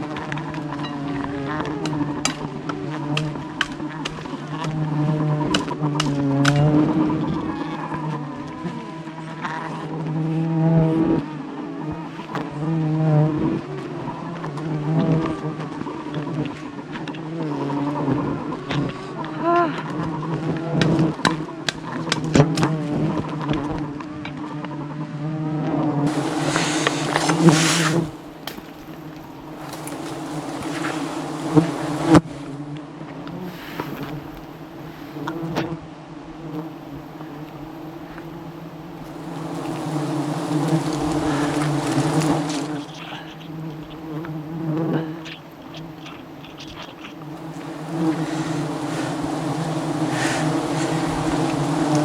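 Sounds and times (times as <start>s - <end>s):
bees buzzing: 0.0s - 24.9s, 26.0s - 32.3s, 33.2s - 35.8s, 36.4s - 52.0s
loud hiss: 26.1s - 32.2s, 47.5s - 52.0s.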